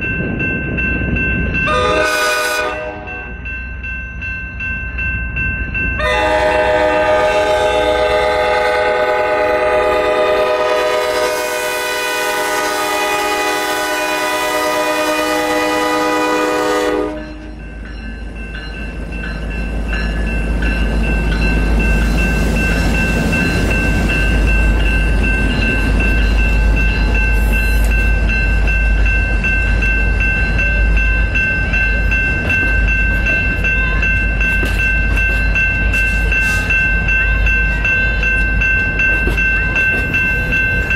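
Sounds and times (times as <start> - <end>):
train rumble: 0.0 - 40.9
locomotive air horn chord: 1.7 - 3.3, 6.0 - 17.3.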